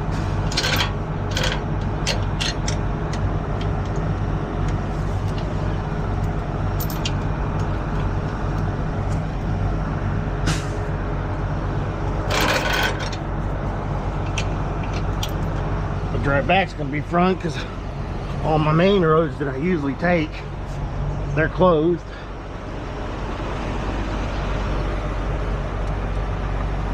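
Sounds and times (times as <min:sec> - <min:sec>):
diesel truck engine idling: 0:00.0 - 0:26.9.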